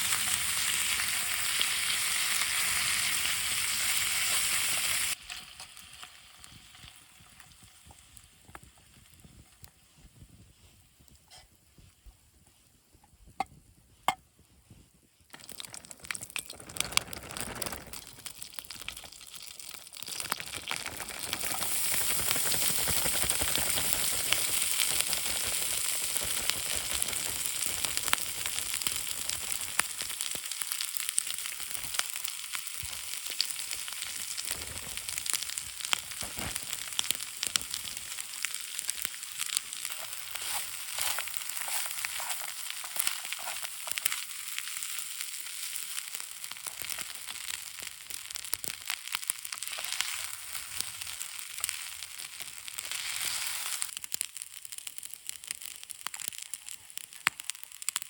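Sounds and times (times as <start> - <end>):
food sizzling in a pan: 0.0 - 10.4, 15.5 - 58.0.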